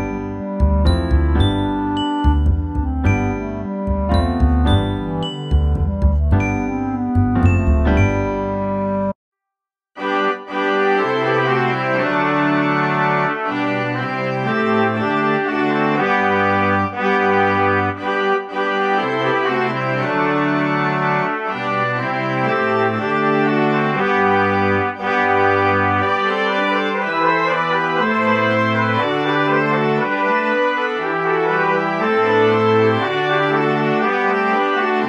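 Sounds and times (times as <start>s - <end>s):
sustained melody notes: 0.0s - 9.1s
stepping bass line: 0.5s - 8.2s.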